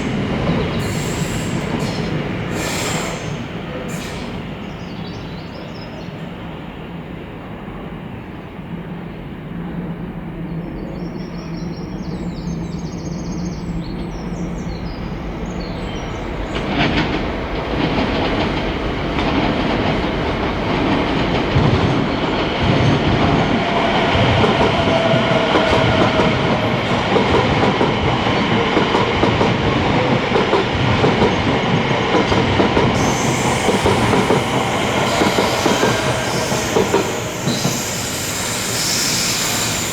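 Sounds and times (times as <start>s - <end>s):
sharp hiss: 0.0s - 4.8s, 33.0s - 39.9s
train wheels rumbling on track: 0.0s - 39.9s.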